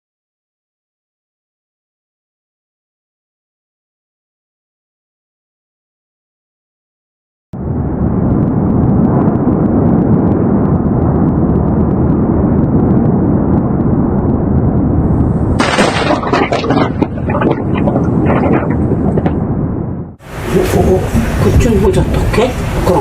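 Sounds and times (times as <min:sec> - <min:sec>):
low rumbling noise: 0:07.6 - 0:23.0.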